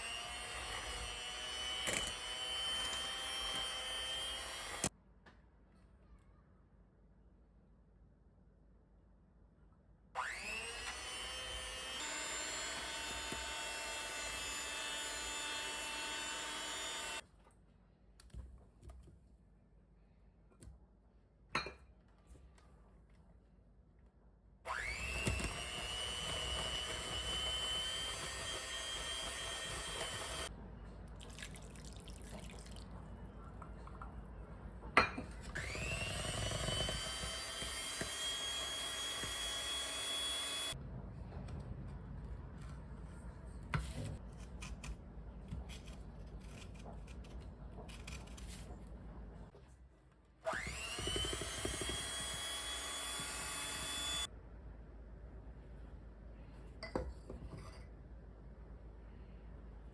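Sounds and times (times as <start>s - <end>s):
electric hand mixer whine: 0.0s - 4.9s, 10.2s - 17.2s, 24.7s - 30.5s, 35.6s - 40.8s, 50.5s - 54.3s
small knocks and clinks: 56.8s - 57.9s.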